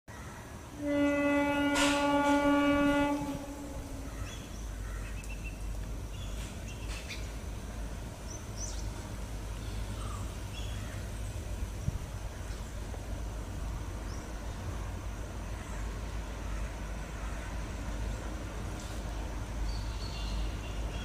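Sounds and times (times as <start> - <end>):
locomotive rumble: 0.3 - 21.0
train horn blast: 0.7 - 4.8.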